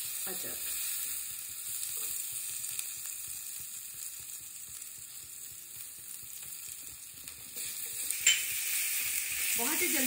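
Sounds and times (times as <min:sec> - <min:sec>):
paste sizzling in hot oil: 0:00.0 - 0:10.0.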